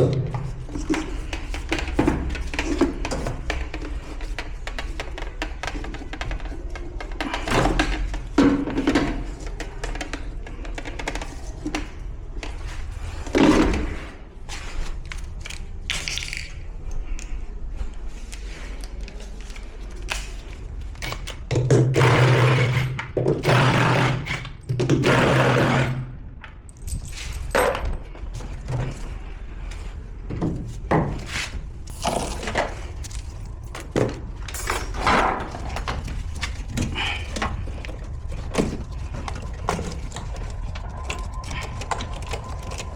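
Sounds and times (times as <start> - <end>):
tools and parts clattering: 0.0 - 17.4, 18.3 - 42.9.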